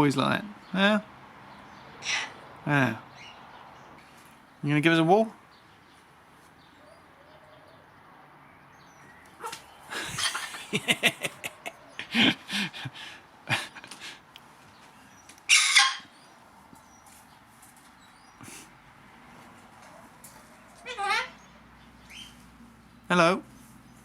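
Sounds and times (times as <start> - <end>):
parrot screeching: 2.0 - 2.4, 10.2 - 10.5, 15.5 - 16.2, 20.7 - 21.5
parrot squawking and clicking: 15.3 - 16.1, 19.9 - 21.4.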